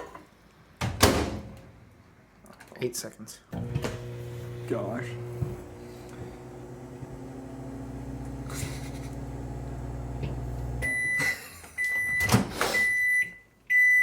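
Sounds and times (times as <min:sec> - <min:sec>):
microwave oven humming: 0:03.6 - 0:11.3
microwave long beeps: 0:10.0 - 0:14.0.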